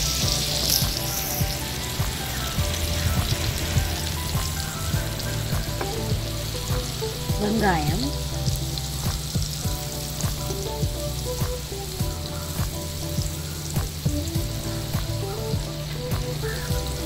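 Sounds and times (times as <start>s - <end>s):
onions sizzling on a griddle: 0.0s - 17.0s.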